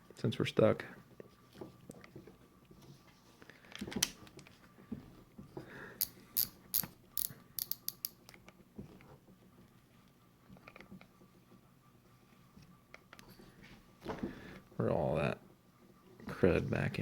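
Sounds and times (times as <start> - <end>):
fishing reel clicking: 6.0 - 8.2.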